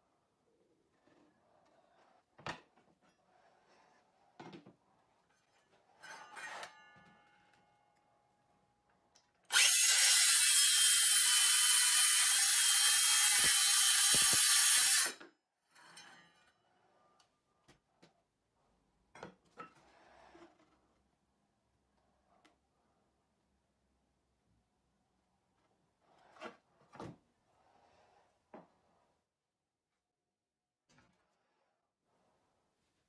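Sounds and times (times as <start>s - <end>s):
circular saw cutting board: 9.5s - 16.2s.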